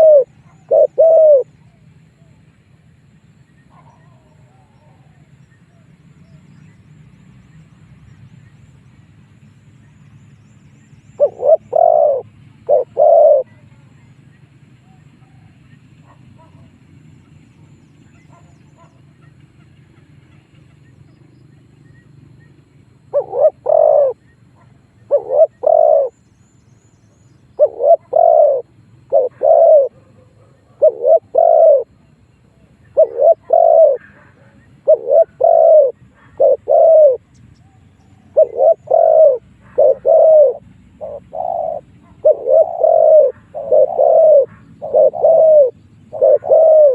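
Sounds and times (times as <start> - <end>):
dove cooing: 0.0 - 2.4, 3.7 - 6.0, 11.2 - 14.1, 23.0 - 26.2, 27.6 - 46.9.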